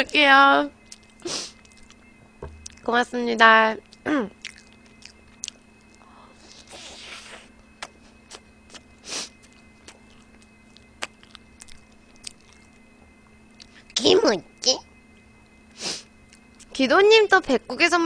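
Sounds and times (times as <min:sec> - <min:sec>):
faint steady hum: 0:00.0 - 0:18.0
biting and chewing: 0:03.8 - 0:06.0, 0:06.6 - 0:12.8.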